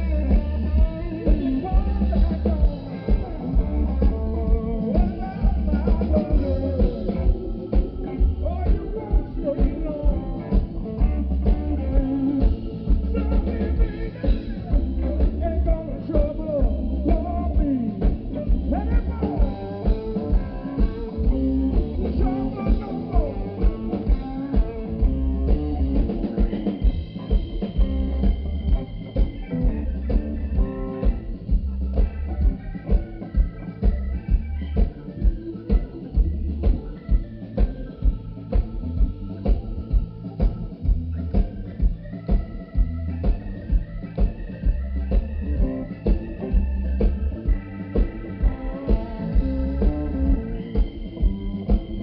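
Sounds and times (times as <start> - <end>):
bass: 0.0 - 52.0
drum kit steady beat: 0.0 - 52.0
guitar with bent notes: 0.0 - 52.0
live blues band: 0.0 - 52.0.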